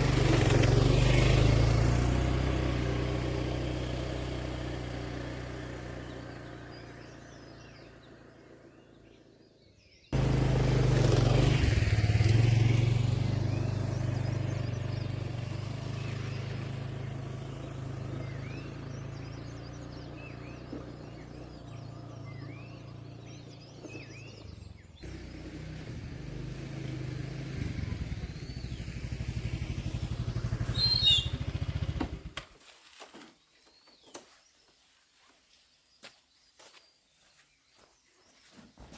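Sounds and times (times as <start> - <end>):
vehicle engine humming: 0.0 - 9.3, 10.2 - 32.4
small birds chirping: 0.0 - 32.4, 33.0 - 38.9.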